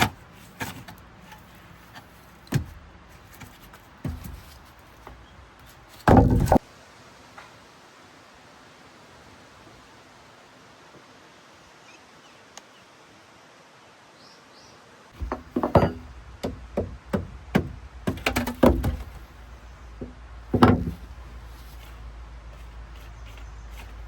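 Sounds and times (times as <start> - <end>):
quiet hiss: 0.0 - 24.0
hard objects knocking: 6.1 - 6.6, 15.2 - 19.2, 20.0 - 21.2.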